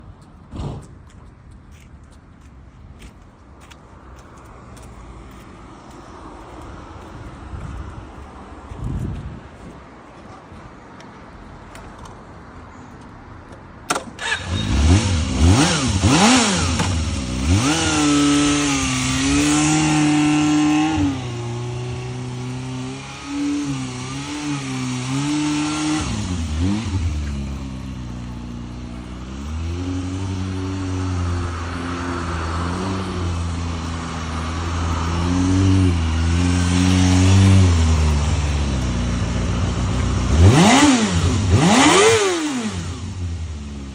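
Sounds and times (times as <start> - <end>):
motorcycle engine revving: 14.2 - 43.9.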